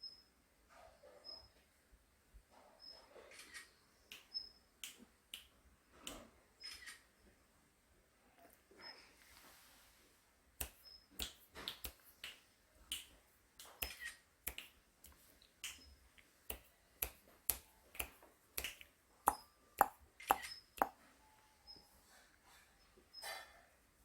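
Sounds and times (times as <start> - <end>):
sharp irregular clicks: 10.6 - 15.9, 16.5 - 20.9.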